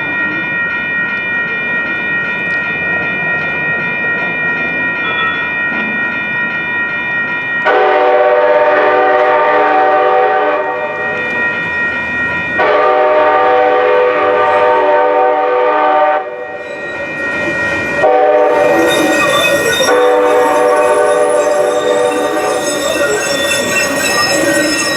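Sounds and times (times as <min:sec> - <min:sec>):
steady high ringing: 0:00.0 - 0:24.9
train running noise: 0:00.0 - 0:24.9
train horn blasts: 0:07.7 - 0:11.0, 0:12.6 - 0:16.6, 0:18.0 - 0:19.0, 0:19.9 - 0:22.7.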